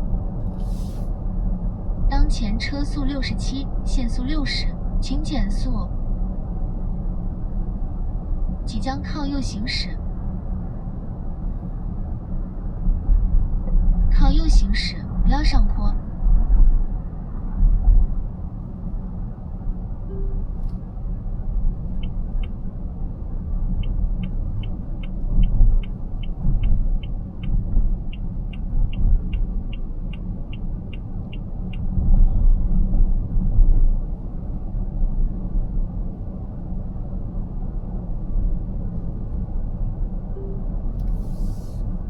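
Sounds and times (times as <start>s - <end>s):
road and tyre rumble: 0.0s - 42.0s
turn signal ticking: 21.8s - 22.6s, 23.7s - 31.9s.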